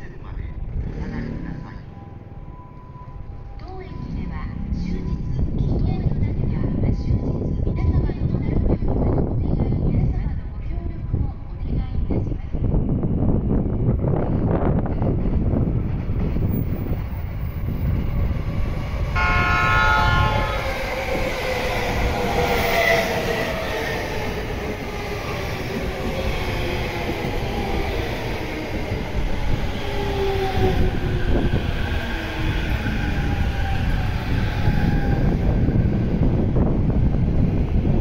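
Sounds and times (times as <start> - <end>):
wheel and rail rumble: 0.0 - 38.0
train horn blast: 19.2 - 20.8.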